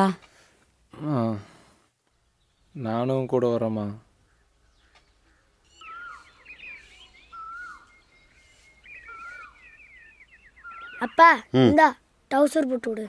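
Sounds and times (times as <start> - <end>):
quick bird chirping: 3.8 - 11.9
bird whistled phrase: 5.8 - 11.5.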